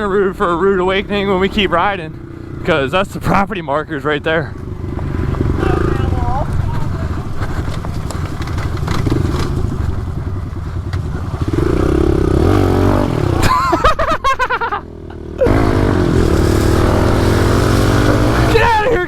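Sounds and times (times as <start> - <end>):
small motorcycle engine revving: 4.6 - 13.8, 14.6 - 19.0.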